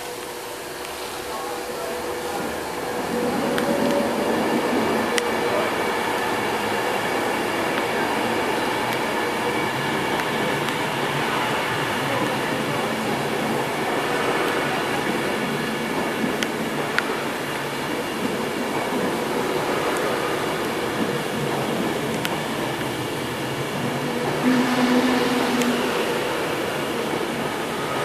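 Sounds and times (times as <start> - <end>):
train coaches rolling past: 0.0 - 28.0
short low hum: 24.4 - 26.8.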